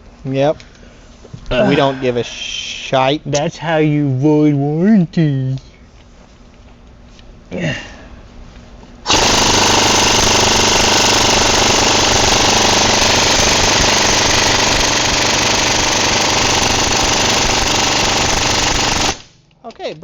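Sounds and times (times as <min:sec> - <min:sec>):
impact wrench hammering bolt: 0:09.1 - 0:19.2.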